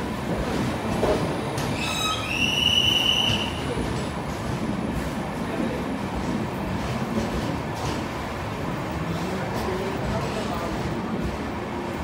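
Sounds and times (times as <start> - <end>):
train coaches rumbling: 0.0 - 12.0
metallic squeal of train brakes: 1.6 - 3.7.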